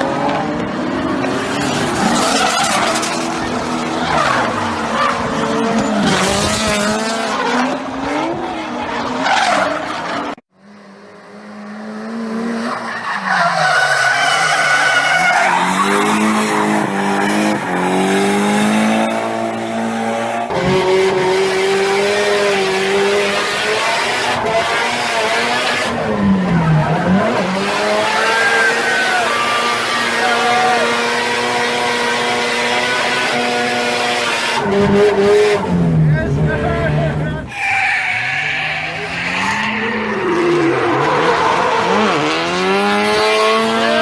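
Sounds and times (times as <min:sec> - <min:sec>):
car engines revving: 0:00.0 - 0:44.0
tyres screeching: 0:12.6 - 0:20.3, 0:24.0 - 0:32.3, 0:33.0 - 0:42.3.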